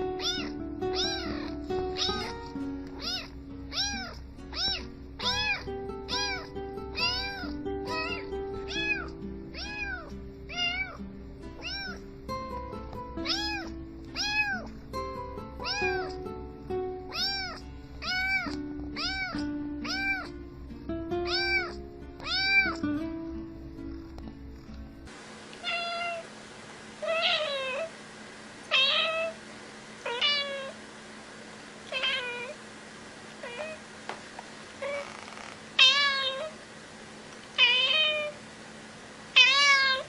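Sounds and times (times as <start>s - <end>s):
cat meowing: 0.2s - 11.0s, 11.6s - 12.0s, 13.2s - 14.7s, 15.6s - 16.2s, 17.1s - 20.4s, 21.2s - 22.8s, 25.6s - 26.3s, 27.0s - 27.9s, 28.7s - 29.4s, 30.0s - 30.8s, 31.9s - 32.6s, 33.4s - 33.8s, 34.8s - 36.6s, 37.6s - 38.4s, 39.4s - 40.0s
background music with steady beat: 11.1s - 25.1s.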